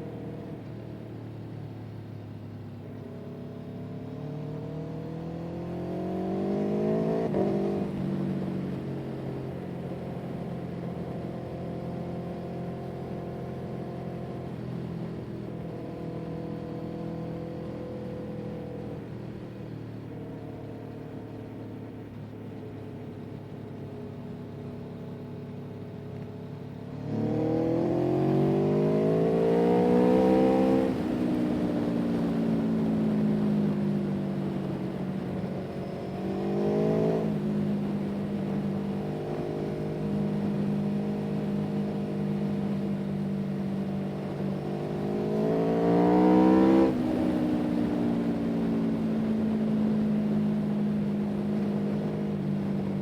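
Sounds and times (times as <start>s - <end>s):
engine revving: 27.0s - 31.2s, 44.7s - 47.2s.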